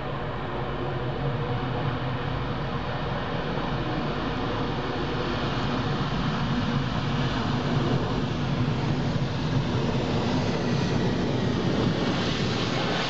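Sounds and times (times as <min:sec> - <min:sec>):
airliner engines rumbling: 0:00.0 - 0:13.0.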